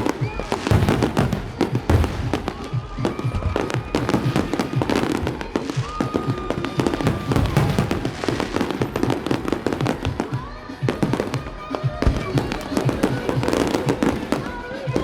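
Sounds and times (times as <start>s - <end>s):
fireworks banging and crackling: 0.0s - 15.0s.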